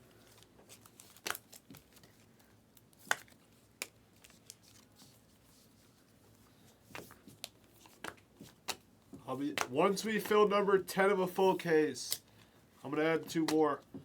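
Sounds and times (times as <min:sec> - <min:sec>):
cards and packaging clicking: 0:00.2 - 0:04.9, 0:06.9 - 0:08.9.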